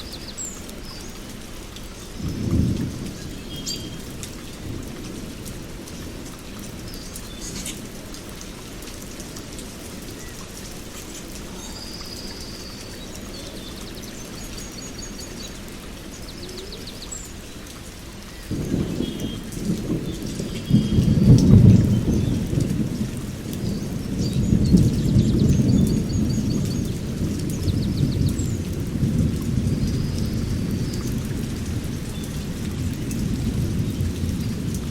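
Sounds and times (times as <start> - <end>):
steady rain: 0.0 - 34.9
low rumble of thunder: 2.0 - 7.7, 18.4 - 34.9
small birds chirping: 5.9 - 7.9, 10.1 - 17.7.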